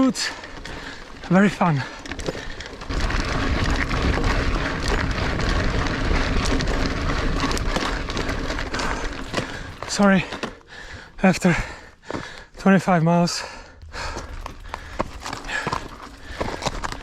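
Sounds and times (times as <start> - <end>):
bike clicking and rattling: 0.0 - 17.0
bike tyre noise on dirt: 0.0 - 17.0
wind rumble on microphone: 2.4 - 9.9.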